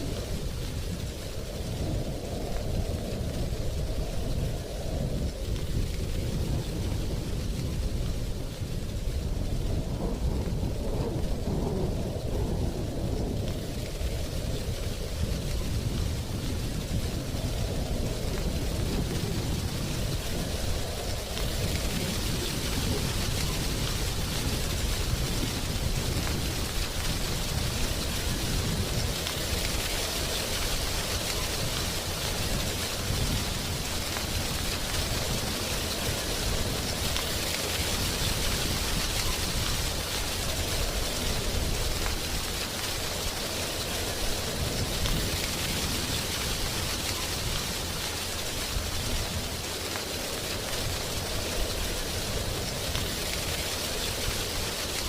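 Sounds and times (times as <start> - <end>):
wind rustling dry leaves: 0.0 - 55.0.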